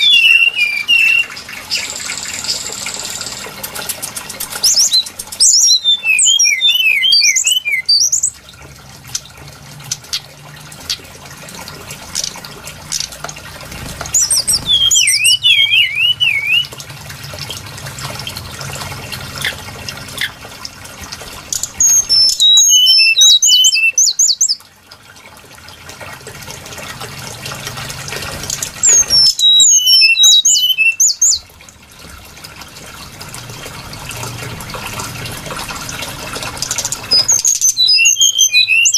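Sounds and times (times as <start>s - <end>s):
bird whistling song: 0.0s - 3.4s, 4.5s - 8.4s, 14.1s - 16.7s, 21.6s - 24.6s, 28.8s - 31.4s, 36.9s - 38.9s.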